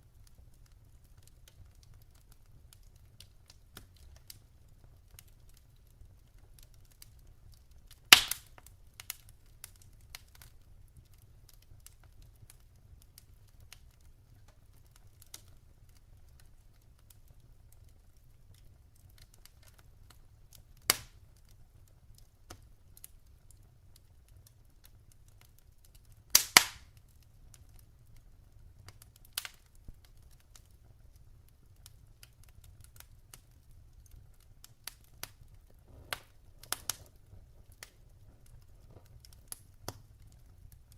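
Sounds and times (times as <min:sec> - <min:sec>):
fire crackling: 0:00.0 - 0:40.9
sharp pops of fire: 0:07.9 - 0:10.6, 0:19.1 - 0:21.5, 0:25.9 - 0:27.8, 0:28.9 - 0:30.7, 0:31.8 - 0:40.9.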